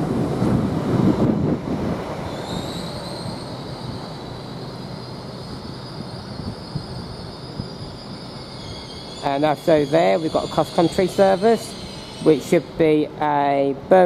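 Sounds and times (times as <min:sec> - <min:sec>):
train rumble: 0:00.0 - 0:14.0
high brake squeal: 0:02.3 - 0:12.7.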